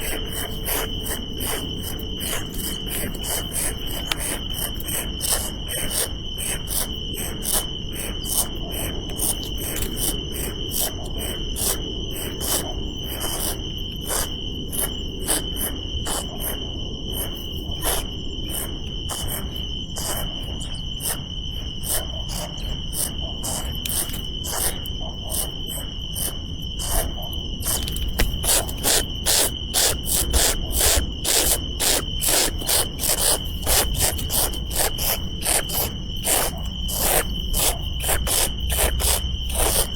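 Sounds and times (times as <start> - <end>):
insect chirps: 0.0 - 39.9
insects trilling: 0.0 - 39.9.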